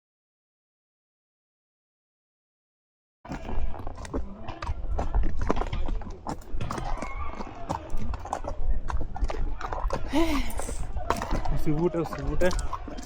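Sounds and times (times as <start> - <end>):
horse hooves clopping: 3.3 - 13.0.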